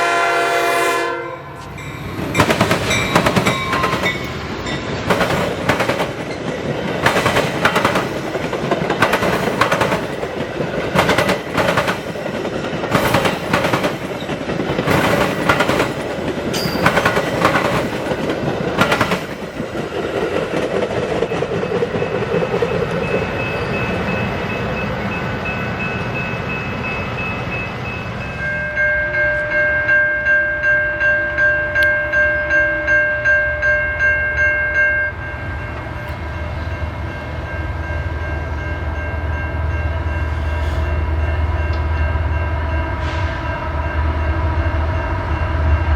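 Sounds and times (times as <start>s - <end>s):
train wheels clicking over rail joints: 1.6s - 24.0s.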